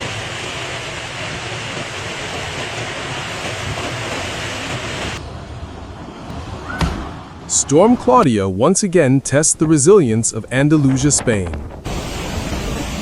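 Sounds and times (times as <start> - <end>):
heavy rain: 0.0 - 5.2, 11.2 - 13.0
wind: 0.0 - 12.8.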